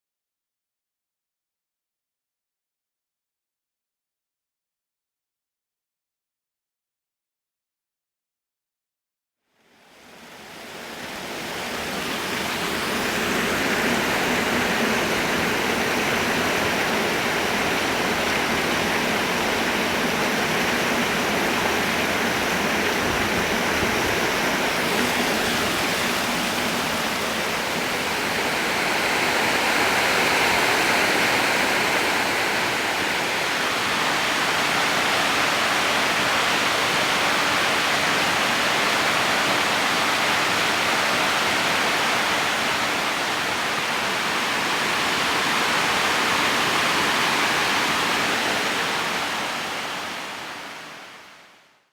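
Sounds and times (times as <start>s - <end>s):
waterfall rushing: 10.0s - 51.3s.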